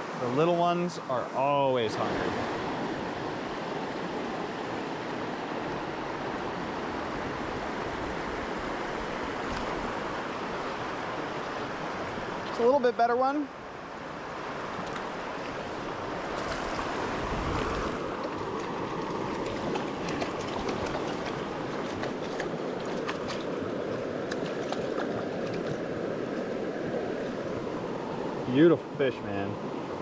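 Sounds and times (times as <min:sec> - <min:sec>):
creek water rushing: 0:00.0 - 0:30.0.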